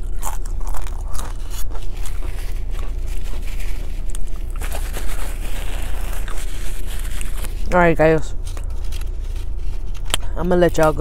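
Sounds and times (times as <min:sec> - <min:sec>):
chewing with wet mouth clicks: 0:00.0 - 0:05.0
car idling hum: 0:00.0 - 0:11.0
tortilla chip crunching: 0:00.0 - 0:11.0.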